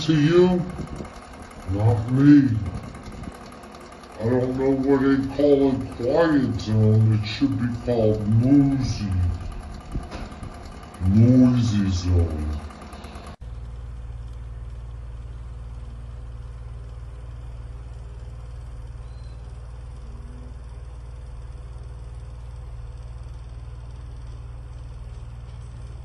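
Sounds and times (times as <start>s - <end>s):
rush of air from fan: 0.0s - 1.9s, 2.5s - 4.1s
electric fan motor hum: 0.0s - 26.0s.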